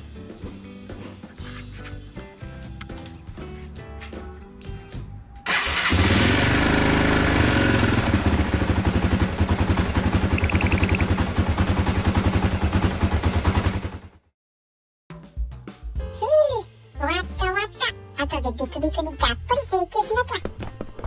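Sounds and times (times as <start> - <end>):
motorcycle engine idling: 7.0 - 14.1.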